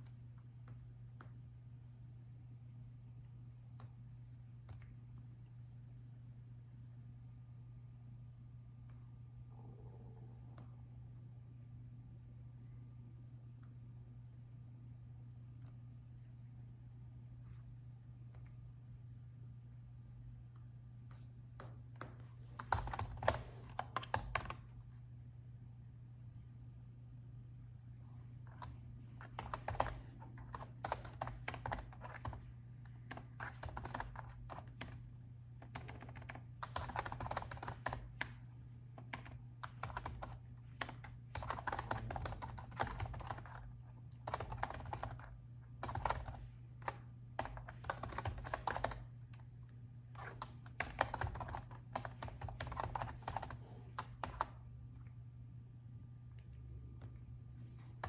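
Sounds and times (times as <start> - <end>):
laptop keyboard typing: 21.6 - 24.7, 28.5 - 49.5, 50.2 - 54.6.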